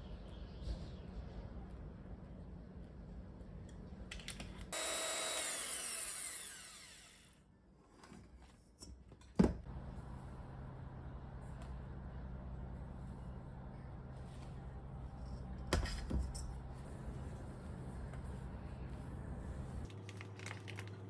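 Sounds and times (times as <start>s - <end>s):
kitchen mixer motor whining: 4.8s - 7.4s
low steady hum: 9.6s - 21.0s.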